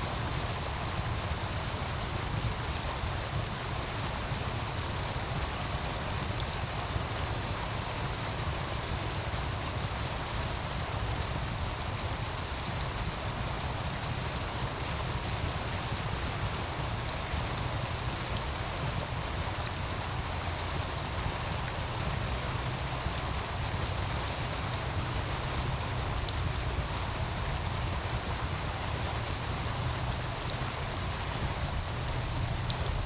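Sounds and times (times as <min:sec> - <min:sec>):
stream rushing: 0:00.0 - 0:33.0
wood fire crackling and popping: 0:00.0 - 0:33.0
deep rumble: 0:21.2 - 0:33.0.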